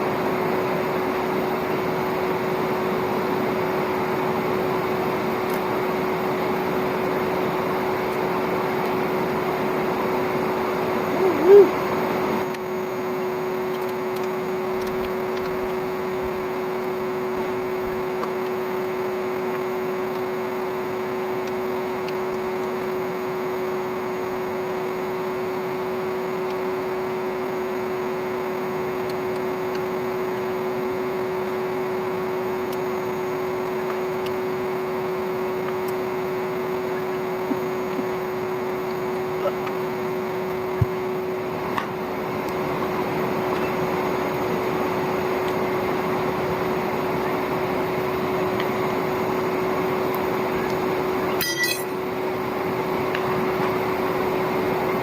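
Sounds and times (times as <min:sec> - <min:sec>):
vacuum cleaner motor hum: 0:00.0 - 0:55.0.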